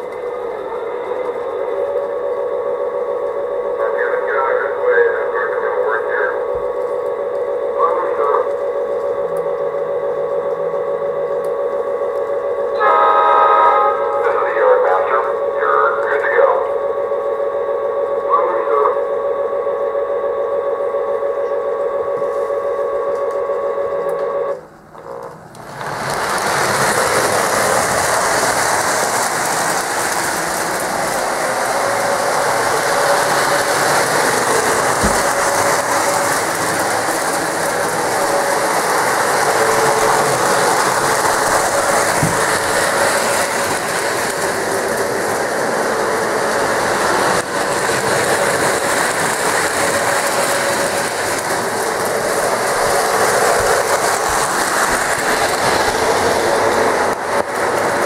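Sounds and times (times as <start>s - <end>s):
wheels rattling over rails: 25.0s - 58.0s
model train motor whirring: 25.2s - 58.0s.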